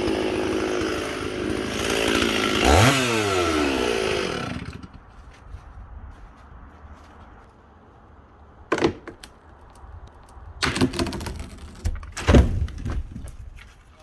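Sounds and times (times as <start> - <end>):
loud knocks and thuds: 10.6 - 13.5.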